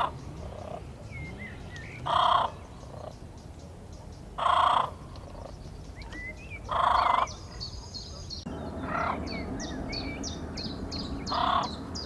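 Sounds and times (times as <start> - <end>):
large bird calling loudly: 0.0 - 3.2, 4.4 - 12.0
faint whistled songbird notes: 5.1 - 12.0.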